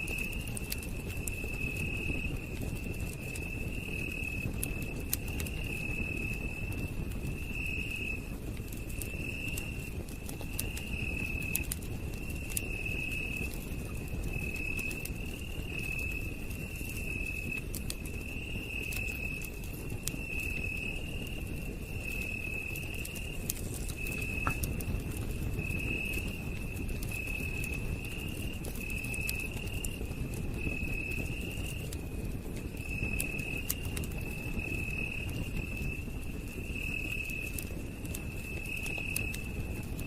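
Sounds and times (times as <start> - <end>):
campfire crackling: 0.0 - 40.0
insect trilling: 23.7 - 24.7.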